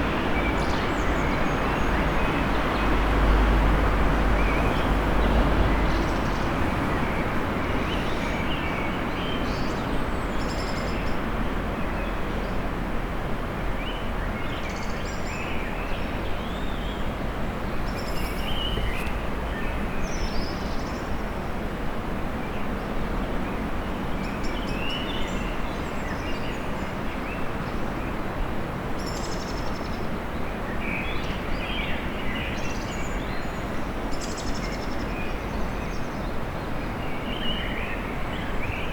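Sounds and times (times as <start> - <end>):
small songbirds chirping: 13.8 - 21.1
traffic rumble: 16.3 - 21.7.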